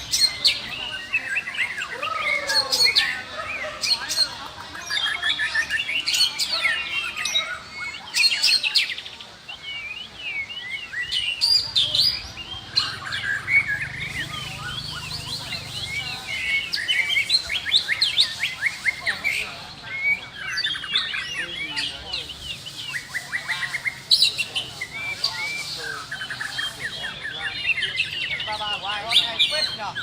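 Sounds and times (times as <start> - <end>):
songbirds singing: 0.0 - 30.0.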